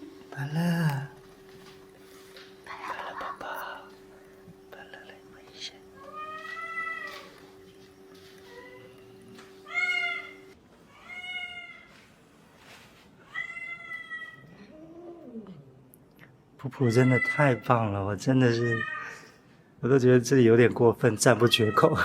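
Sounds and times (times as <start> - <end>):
cat meowing: 6.0 - 7.4, 9.7 - 11.9, 13.3 - 15.5, 18.5 - 19.3, 21.4 - 22.0.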